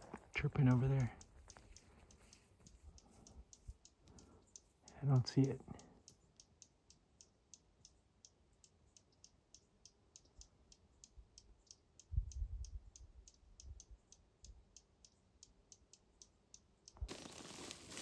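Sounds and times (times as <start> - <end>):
rustling hiss: 17.1 - 18.0.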